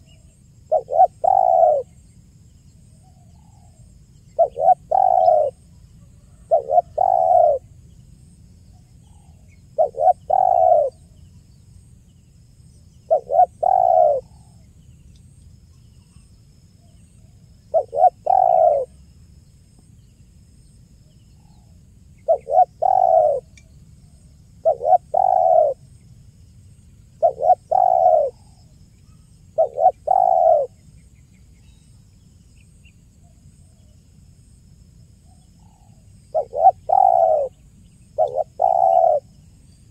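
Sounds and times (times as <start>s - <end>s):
dove cooing: 0.7s - 1.9s, 4.4s - 5.6s, 6.2s - 7.6s, 9.8s - 11.0s, 13.1s - 14.6s, 17.7s - 19.0s, 22.2s - 23.5s, 24.6s - 25.8s, 27.2s - 28.6s, 29.6s - 30.8s, 35.8s - 37.6s, 38.2s - 39.3s.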